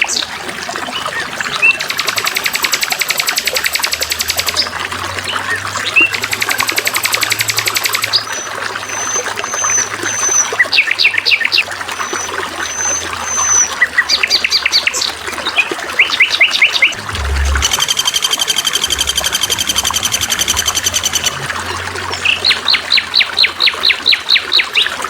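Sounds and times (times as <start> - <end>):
songbirds calling: 0.0 - 21.5
water trickling and gurgling: 0.0 - 25.0
faint low hum: 17.0 - 21.5.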